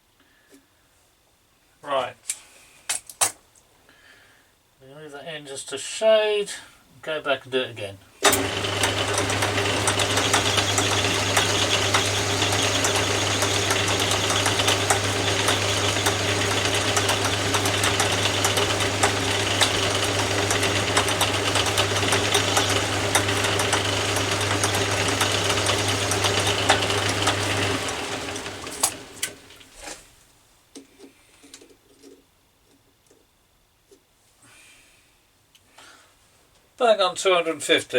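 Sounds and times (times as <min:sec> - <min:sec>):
metal lathe running: 0:08.2 - 0:29.6.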